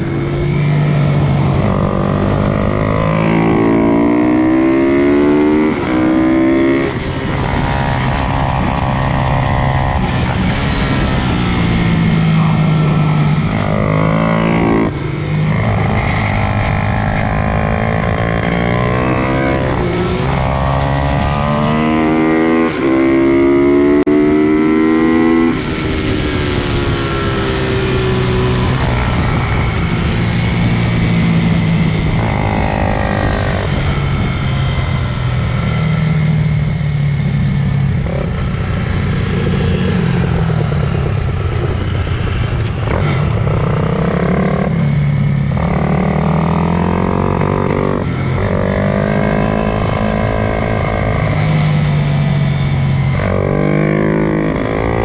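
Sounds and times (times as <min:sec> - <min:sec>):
pit bike engines revving: 0:37.8 - 0:55.0.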